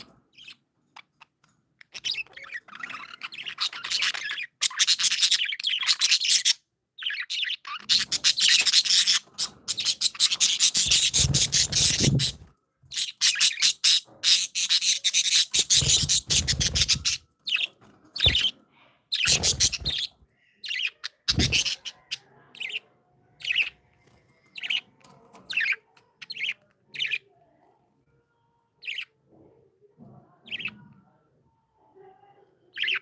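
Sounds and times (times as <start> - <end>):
budgerigars warbling and chattering: 0.0 - 23.9, 24.5 - 27.3, 28.8 - 29.1, 30.4 - 30.8, 32.7 - 33.0.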